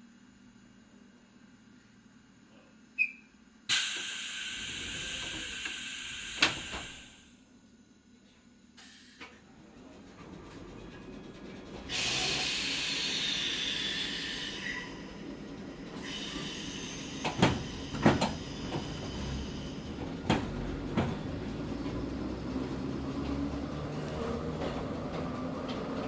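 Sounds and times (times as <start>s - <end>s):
hiss: 3.7s - 7.3s, 11.9s - 14.9s, 16.0s - 19.9s
train running rumble: 9.5s - 26.0s.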